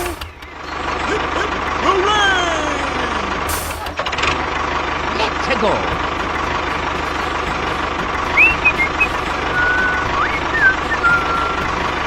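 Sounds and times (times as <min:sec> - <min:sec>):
small motor running: 0:05.8 - 0:12.0
short chirping whistles: 0:08.4 - 0:11.7.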